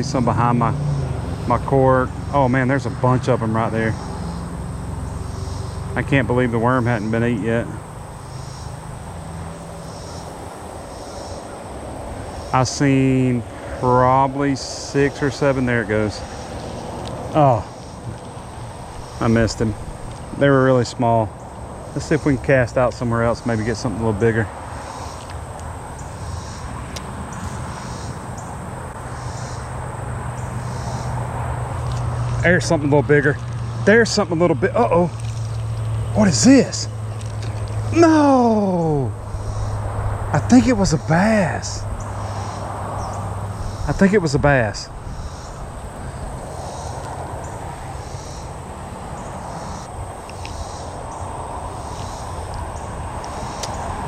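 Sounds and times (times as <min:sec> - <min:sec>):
steady outdoor hiss: 0:00.0 - 0:54.0
vehicle rumbling on road: 0:00.0 - 0:54.0
high insect buzz: 0:00.1 - 0:01.5, 0:03.6 - 0:54.0
faint ticks: 0:50.2 - 0:51.2.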